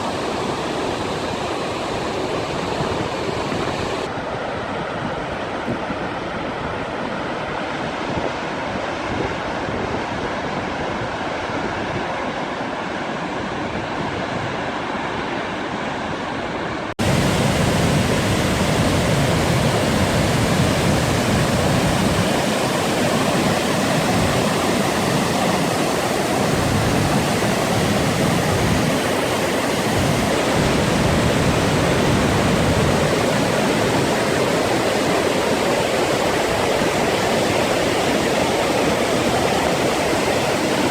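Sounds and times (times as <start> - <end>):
waterfall rushing: 17.0 - 40.9.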